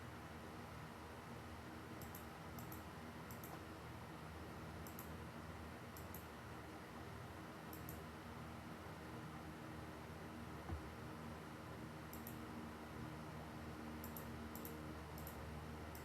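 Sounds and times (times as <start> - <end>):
low room hum: 0.0 - 16.0
computer mouse clicking: 2.0 - 3.6, 4.8 - 5.2, 6.0 - 6.3, 7.7 - 8.0, 12.1 - 12.4, 14.0 - 16.0.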